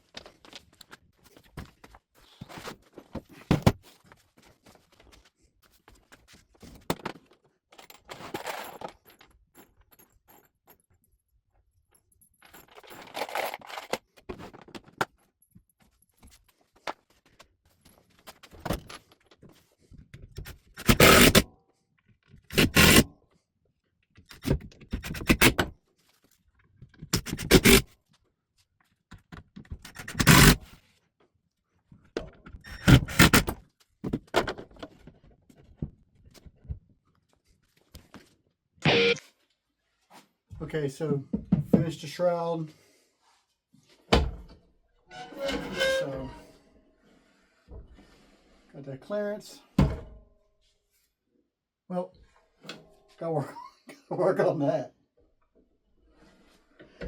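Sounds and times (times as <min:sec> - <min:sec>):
short loud bursts: 0:38.9 - 0:39.2.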